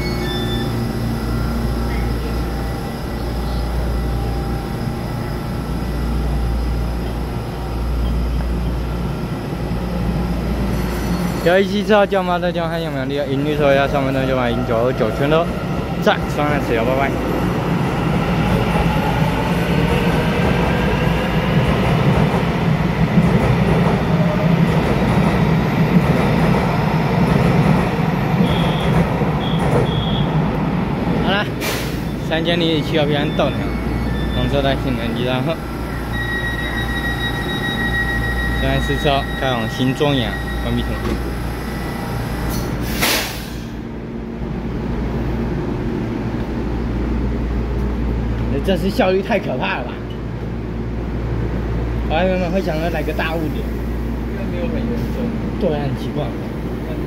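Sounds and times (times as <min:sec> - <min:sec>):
high wheel squeals: 0:00.0 - 0:03.7, 0:32.0 - 0:35.2, 0:36.0 - 0:41.1
train wheels rumbling: 0:00.0 - 0:57.0
air hiss: 0:42.5 - 0:43.8.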